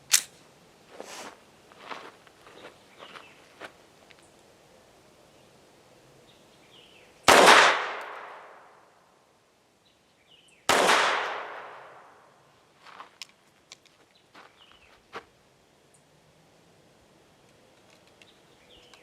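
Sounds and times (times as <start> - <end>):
pistol shots: 7.3 - 8.7, 10.7 - 12.1.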